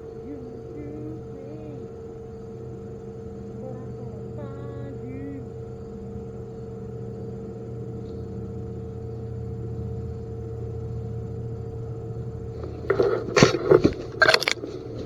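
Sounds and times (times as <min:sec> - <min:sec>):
steady low hum: 0:00.0 - 0:15.0
loud rustling and crunching: 0:12.6 - 0:15.0.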